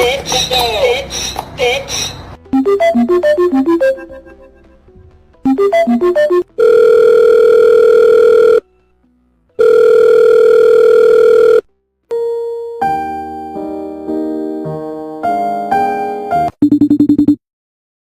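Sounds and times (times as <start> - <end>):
piano-like music: 2.4 - 10.8, 11.7 - 16.6
short phone beeps: 5.5 - 8.6, 9.6 - 11.6
phone ringing tones: 5.5 - 8.7, 9.6 - 12.8.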